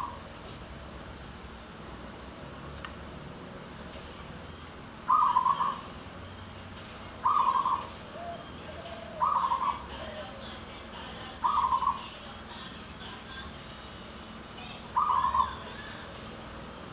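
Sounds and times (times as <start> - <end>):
dove cooing: 5.1 - 6.0, 7.2 - 10.6, 11.3 - 12.2, 14.8 - 16.1.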